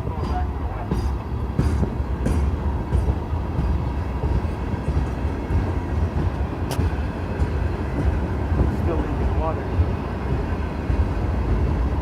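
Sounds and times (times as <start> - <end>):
train cars rumbling: 0.0 - 12.0
train wheels clicking: 0.0 - 12.0.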